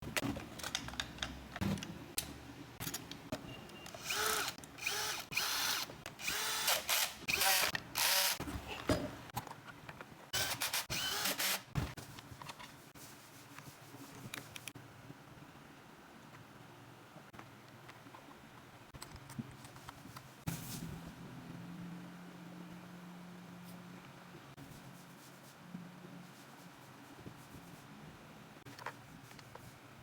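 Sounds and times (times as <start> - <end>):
clicks and knocks of parts: 0.0 - 4.8
power drill whining: 4.0 - 8.4, 10.4 - 11.6.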